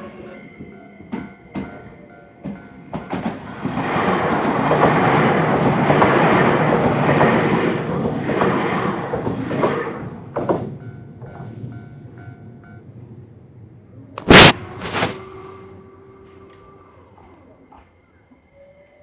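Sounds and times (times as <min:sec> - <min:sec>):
electric train passing: 0:00.0 - 0:18.9
rail joint clacks: 0:00.6 - 0:13.2.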